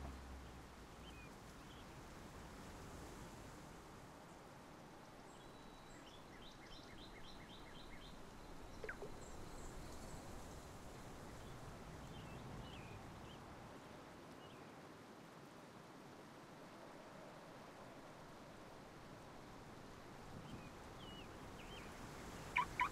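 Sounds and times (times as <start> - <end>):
faint bird chirps: 5.4 - 10.5, 20.5 - 22.9.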